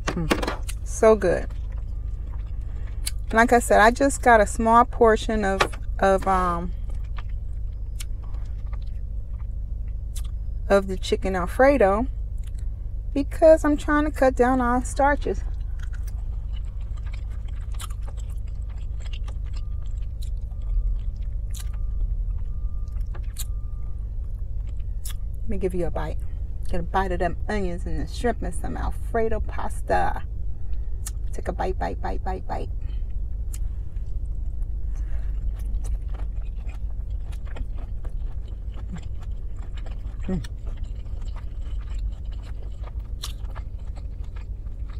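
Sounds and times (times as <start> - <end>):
low rumble: 0.0 - 44.9
steady low hum: 0.0 - 44.9
close-up chewing: 0.6 - 4.9, 6.2 - 10.6, 14.7 - 25.4, 32.9 - 44.9.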